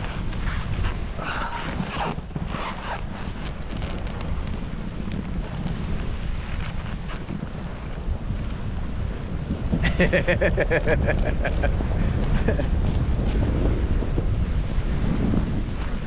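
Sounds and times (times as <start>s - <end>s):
snowboard edge scraping snow: 0.0s - 16.0s
wind buffeting microphone: 0.0s - 16.0s.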